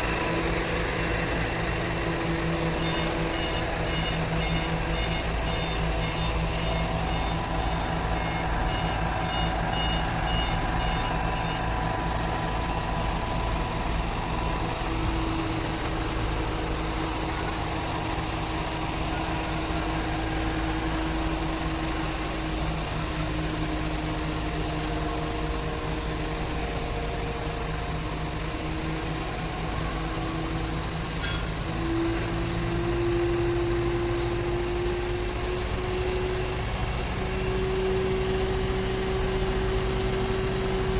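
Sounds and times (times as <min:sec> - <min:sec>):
diesel engine droning: 0:00.0 - 0:40.9
electronic warning beeps: 0:02.7 - 0:11.6.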